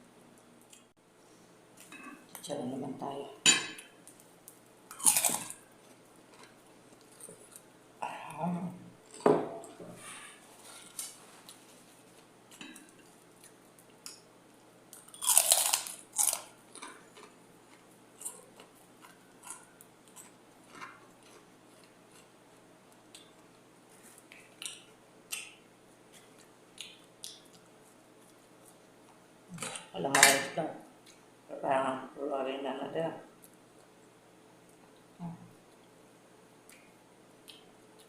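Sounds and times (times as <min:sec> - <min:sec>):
crunching and chewing pork rinds: 0:04.1 - 0:07.7, 0:10.8 - 0:29.2.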